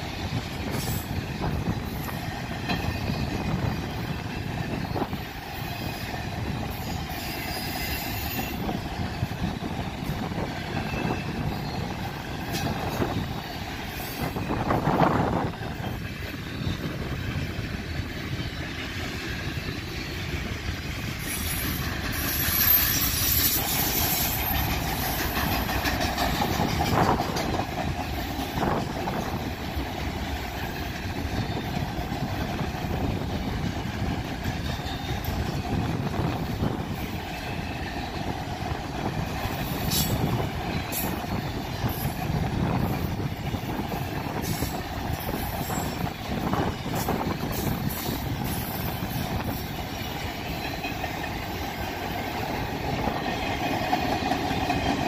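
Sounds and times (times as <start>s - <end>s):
freight train wheels rumbling: 0.0s - 55.0s
high wheel squeals: 21.2s - 25.7s.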